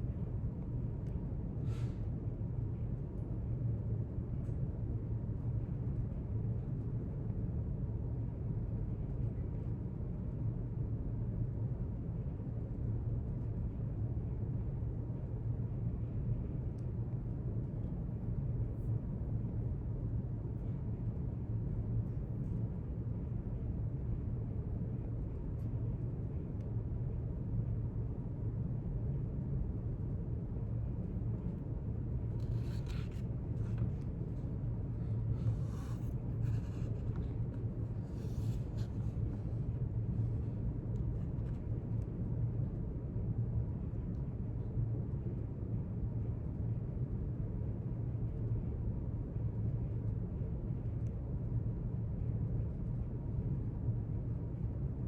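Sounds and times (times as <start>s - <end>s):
low room rumble: 0.0s - 55.0s
paper scratching and rustling: 32.4s - 34.0s, 35.2s - 39.5s.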